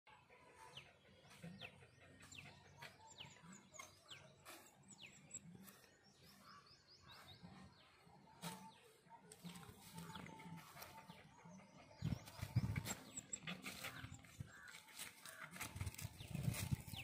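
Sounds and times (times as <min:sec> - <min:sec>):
footsteps on dry leaves: 0:13.5 - 0:17.0.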